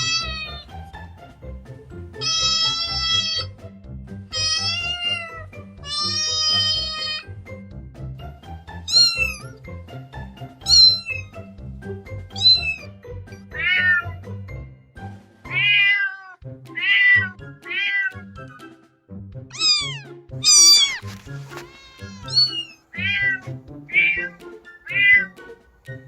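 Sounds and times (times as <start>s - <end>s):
kittens meowing: 0.0s - 0.8s, 2.2s - 3.5s, 4.3s - 7.3s, 8.9s - 9.5s, 10.6s - 11.3s, 12.4s - 12.9s, 13.5s - 14.2s, 15.5s - 18.2s, 19.5s - 25.5s
background music: 0.0s - 26.0s.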